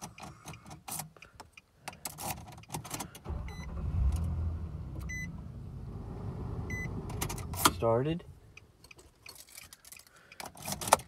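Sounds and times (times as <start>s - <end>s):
keys clicking in ignition: 0.0s - 4.3s, 8.6s - 11.0s
car engine cranking and idling: 2.1s - 9.4s.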